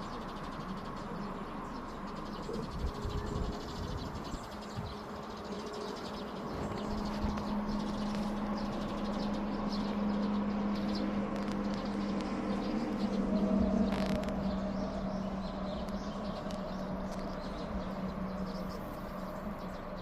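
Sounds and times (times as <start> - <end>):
low rumbles: 0.0 - 20.0
small birds chirping faintly: 0.0 - 20.0
steady low hum: 0.0 - 20.0.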